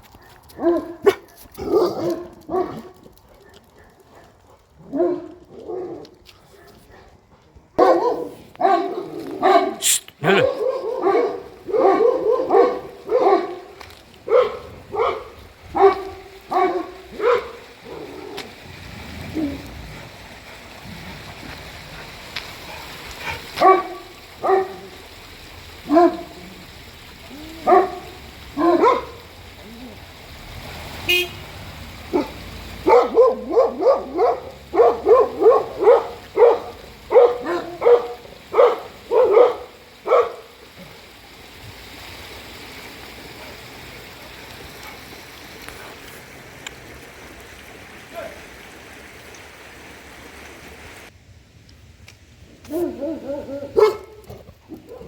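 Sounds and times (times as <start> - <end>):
dogs barking: 0.1 - 7.2, 7.8 - 18.5, 22.8 - 25.0, 25.8 - 26.6, 27.3 - 29.8, 32.0 - 40.6, 52.7 - 55.0.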